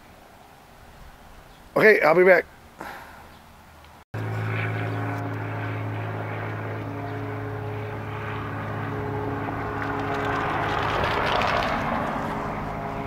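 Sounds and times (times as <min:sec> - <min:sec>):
engine drone: 0:04.2 - 0:13.0.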